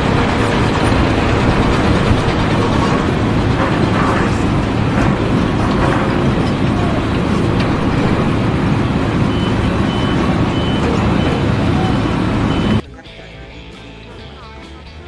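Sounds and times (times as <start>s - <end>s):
heavy engine rumbling: 0.0s - 15.0s
repeating high beep: 9.2s - 12.8s.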